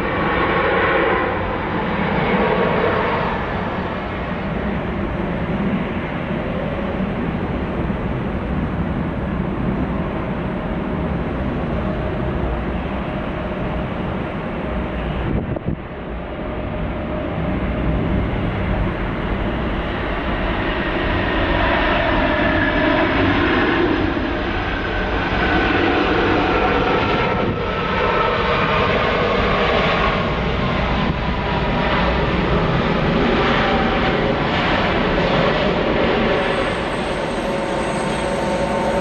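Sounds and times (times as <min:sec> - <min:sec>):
jet engines rushing: 0:00.0 - 0:39.0
rising engine whine: 0:28.2 - 0:39.0.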